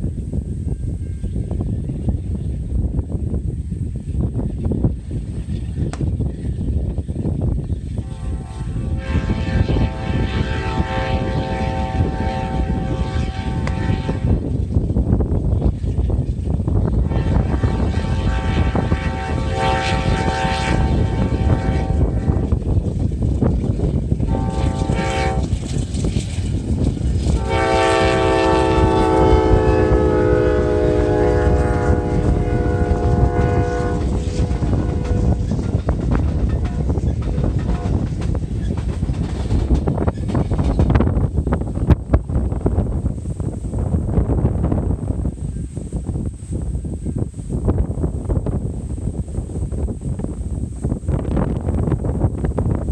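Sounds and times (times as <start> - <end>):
rumble of passing train: 0.0 - 52.9
train horn blast: 7.9 - 14.6, 16.9 - 22.7, 24.2 - 25.9, 27.1 - 38.2.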